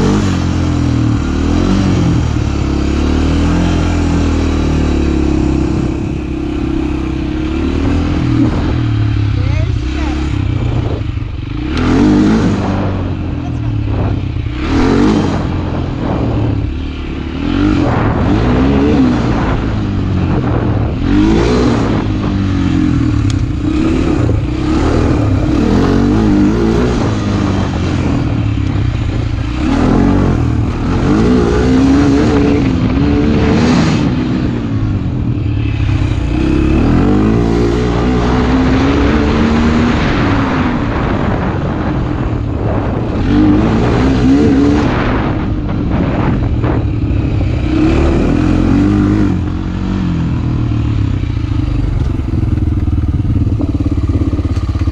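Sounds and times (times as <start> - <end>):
motorcycle engine revving: 0.0 - 54.9
wind noise: 0.0 - 54.9.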